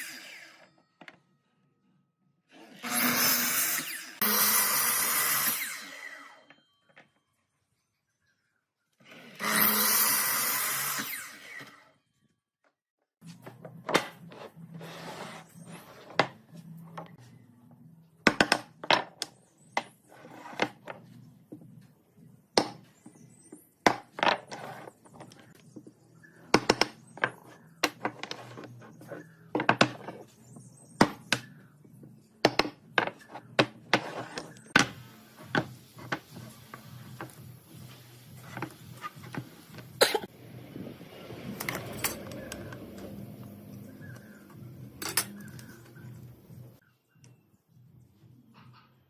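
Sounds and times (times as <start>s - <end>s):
tools and wood knocking: 26.5s - 30.3s.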